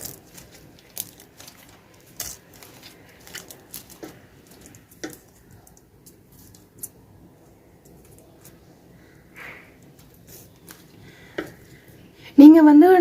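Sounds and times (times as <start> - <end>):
crunchy slime squished by hand: 0.0 - 7.1.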